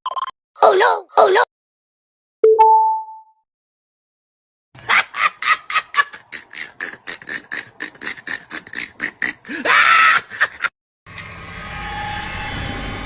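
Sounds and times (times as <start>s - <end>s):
two-tone ding: 2.4s - 3.3s
rasping quacking pulses: 6.2s - 9.6s.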